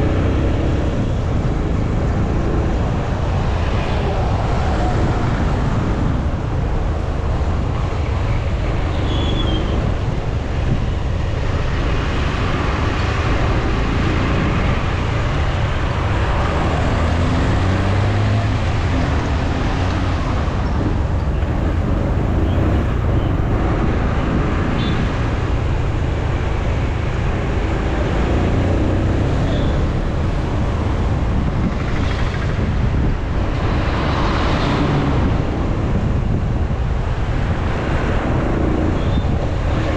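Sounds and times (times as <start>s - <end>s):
road and traffic noise: 0.0s - 39.9s
wind buffeting microphone: 0.0s - 39.9s
motorcycle engine running: 13.3s - 23.8s.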